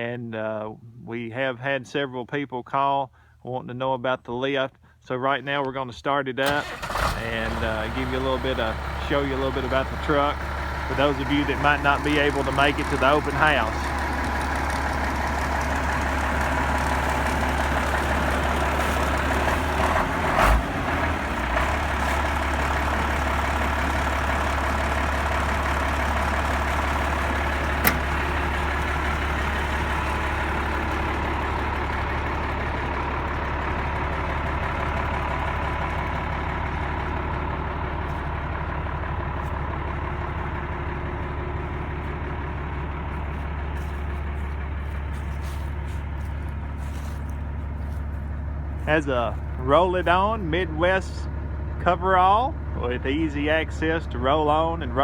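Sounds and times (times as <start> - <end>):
diesel truck engine idling: 6.4 - 55.0
sharp click: 27.8 - 28.1
short thumps: 27.8 - 28.5.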